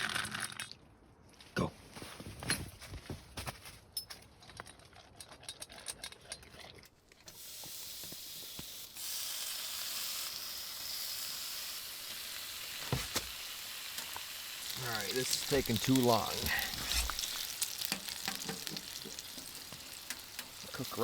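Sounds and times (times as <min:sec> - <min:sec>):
food sizzling in a pan: 0:07.3 - 0:21.0.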